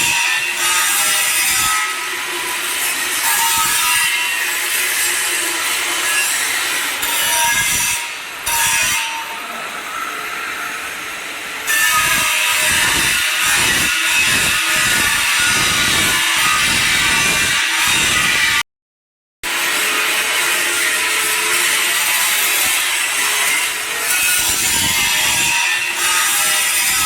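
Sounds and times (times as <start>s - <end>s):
angle grinder grinding steel pipe: 11.6s - 18.6s, 19.5s - 27.0s.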